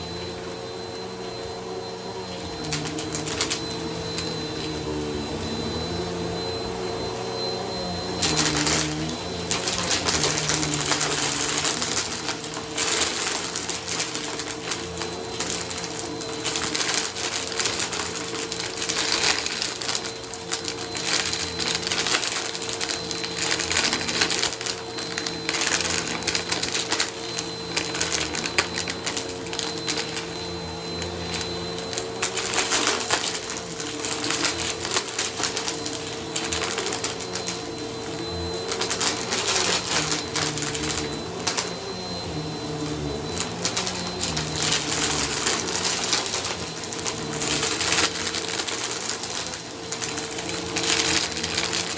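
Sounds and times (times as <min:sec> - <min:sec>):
vacuum cleaner motor hum: 0:00.0 - 0:51.9
debris crackling in vacuum: 0:08.0 - 0:51.9.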